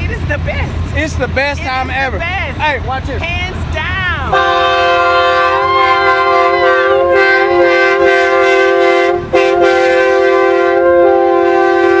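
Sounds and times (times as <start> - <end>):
train air horn chord: 4.3 - 12.0.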